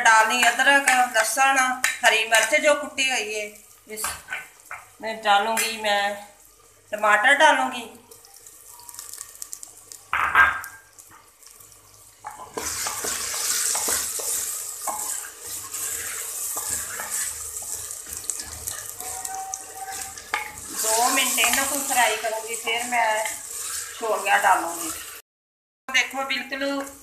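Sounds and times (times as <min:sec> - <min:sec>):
vegetables sizzling in oil: 0:00.0 - 0:25.2, 0:25.9 - 0:27.0
ladle scraping clay pot: 0:12.4 - 0:22.2.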